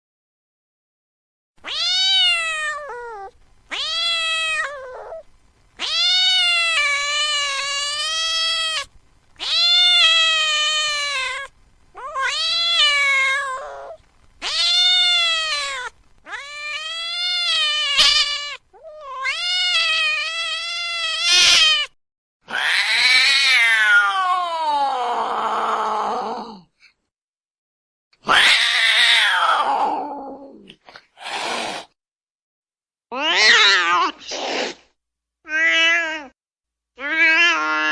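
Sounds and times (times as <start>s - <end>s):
cat meowing in wailing cries: 1.6s - 5.2s, 5.8s - 25.1s, 28.2s - 30.0s, 33.1s - 34.2s, 35.5s - 36.4s, 37.0s - 37.9s.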